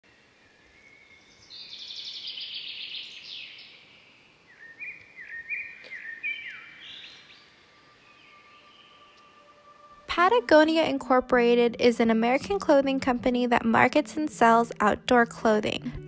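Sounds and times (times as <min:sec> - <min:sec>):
faint outdoor background noise: 0:00.0 - 0:16.0
bird trilling and chirping: 0:04.5 - 0:09.3.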